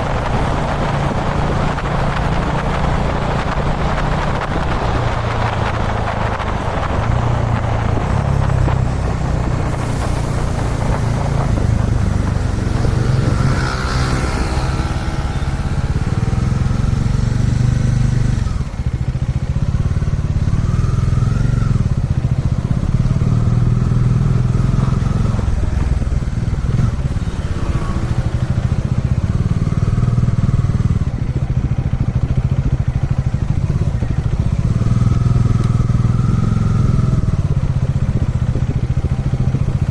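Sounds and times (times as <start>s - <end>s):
wind rush: 0.0s - 19.1s, 21.7s - 30.1s
motorcycle engine running: 0.0s - 39.9s.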